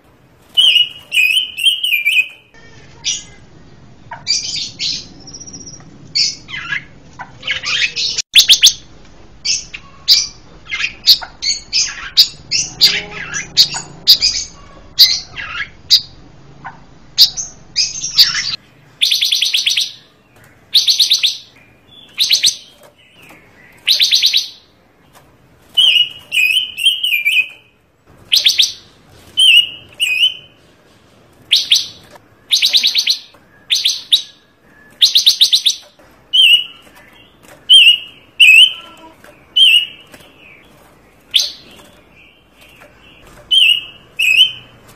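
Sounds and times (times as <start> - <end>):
songbird chirping and whistling: 0.5 - 3.4, 4.1 - 16.2, 17.2 - 24.8, 25.7 - 30.7, 31.4 - 44.8
buzzy rattling bird phrases: 35.1 - 44.8.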